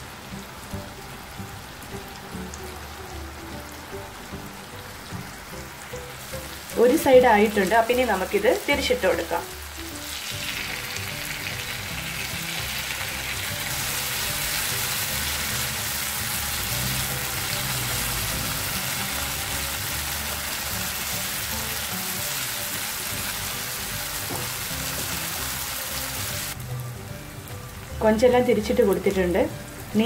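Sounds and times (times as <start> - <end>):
prawns sizzling in a pan: 0.0 - 30.0
spatula turning food in pan: 4.2 - 26.6.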